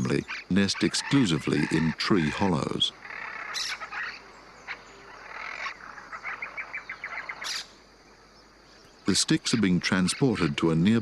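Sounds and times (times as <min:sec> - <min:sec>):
parakeet calls: 0:00.0 - 0:07.7.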